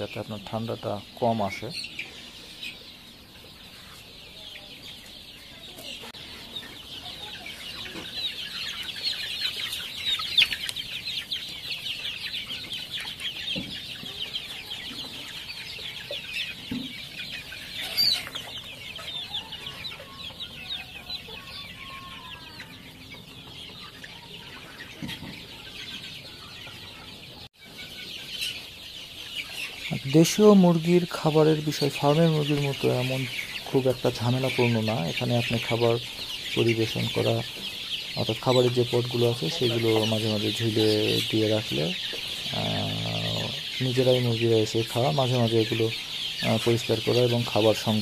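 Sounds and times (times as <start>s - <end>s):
chicks cheeping: 0.0s - 48.0s.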